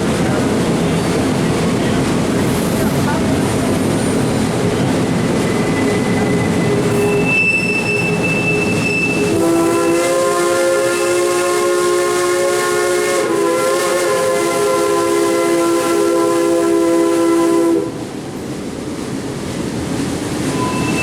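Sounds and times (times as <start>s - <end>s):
moving train rumbling: 0.0s - 21.0s
steam locomotive whistle blast: 5.6s - 18.0s, 20.5s - 21.0s.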